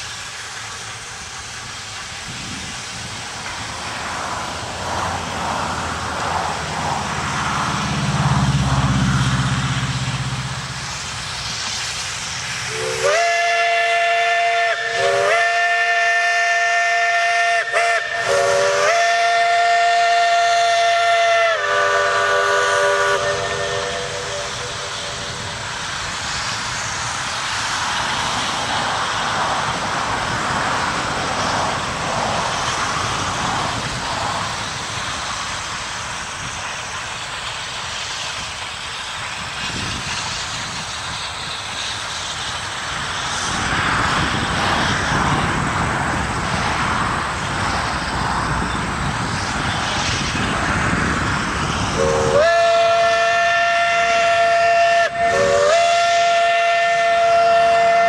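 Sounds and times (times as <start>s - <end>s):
steam train running on rails: 0.0s - 58.0s
steam whistle blowing: 12.7s - 25.5s, 52.0s - 58.0s.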